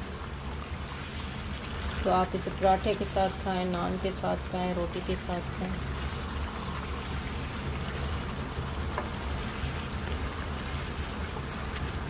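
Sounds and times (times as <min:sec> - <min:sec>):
curry sizzling and bubbling: 0:00.0 - 0:12.0.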